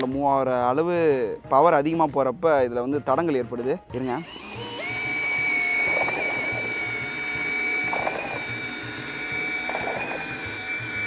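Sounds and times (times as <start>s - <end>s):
electric drill whining: 4.0s - 11.0s.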